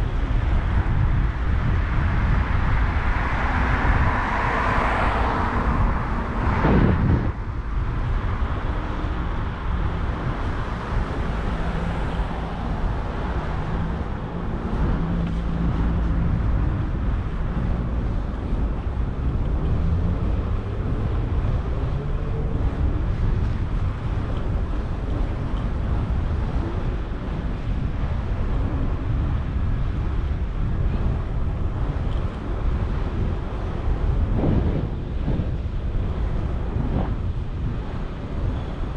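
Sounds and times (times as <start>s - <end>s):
city traffic: 0.0s - 38.9s
road noise: 0.0s - 38.9s
wind on microphone: 0.0s - 38.9s
vehicle passing close: 2.8s - 8.6s.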